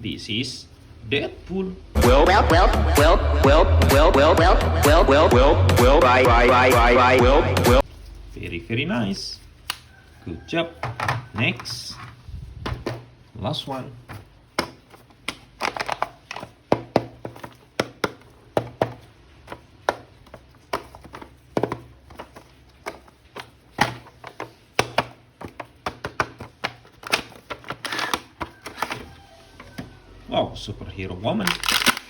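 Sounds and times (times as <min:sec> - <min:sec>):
packaging crinkling: 0:31.4 - 0:32.0.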